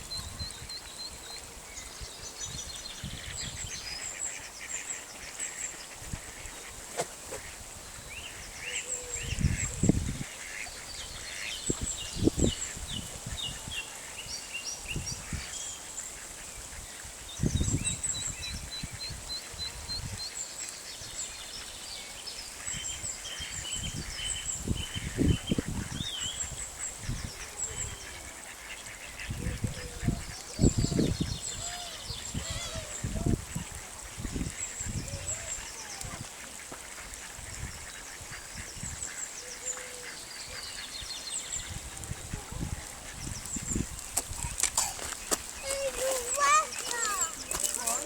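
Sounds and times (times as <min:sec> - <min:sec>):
ducks and swans honking and quacking: 0:25.0 - 0:48.0.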